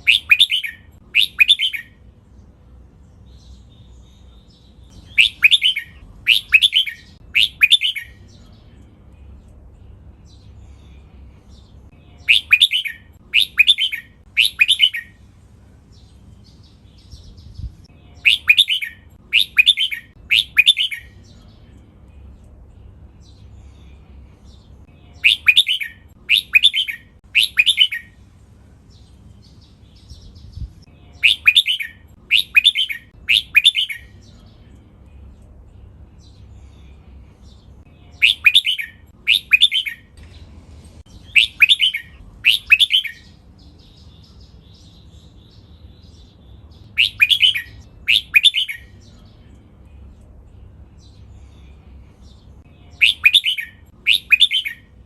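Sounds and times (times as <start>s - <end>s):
bird singing: 0.0s - 28.2s, 28.9s - 55.0s
faint low hum: 0.0s - 55.0s.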